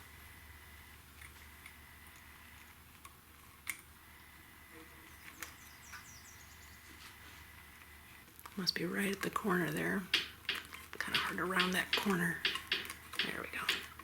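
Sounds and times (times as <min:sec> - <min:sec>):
small parts clicking and tapping: 0:07.8 - 0:14.0.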